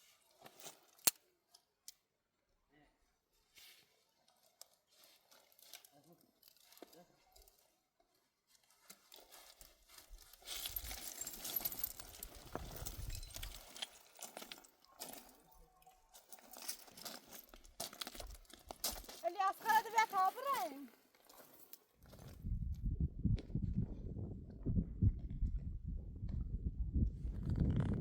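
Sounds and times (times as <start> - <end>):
donkey hooves on rocky ground: 8.6 - 22.6.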